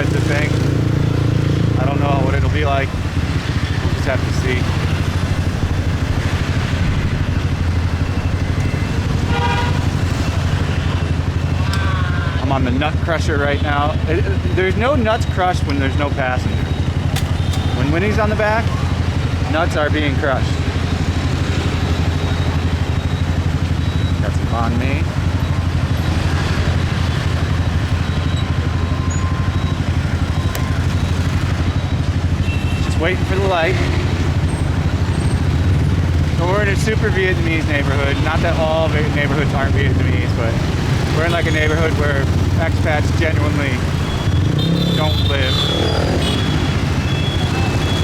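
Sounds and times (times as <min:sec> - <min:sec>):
motorcycle engine running: 0:00.0 - 0:48.0
road and wind noise: 0:00.0 - 0:48.0
vehicle horn honking: 0:09.0 - 0:10.1, 0:44.0 - 0:48.0.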